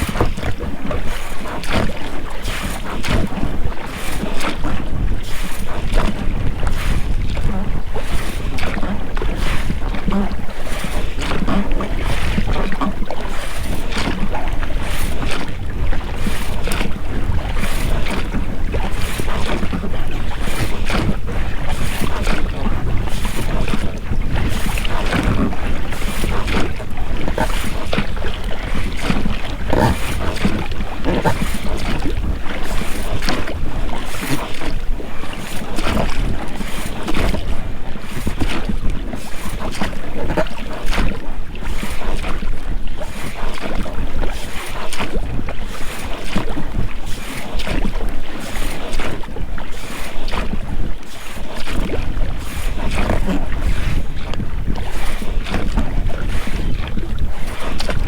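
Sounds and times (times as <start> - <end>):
oars splashing in water: 0.0 - 58.0
wind buffeting microphone: 0.0 - 58.0
rubber rowlocks creaking: 14.9 - 34.7.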